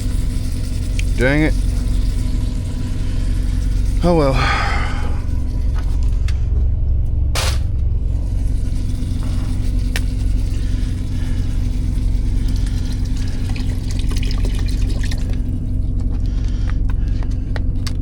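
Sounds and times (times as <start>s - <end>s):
diesel generator droning: 0.0s - 18.0s
liquid pouring into pot: 10.6s - 15.7s.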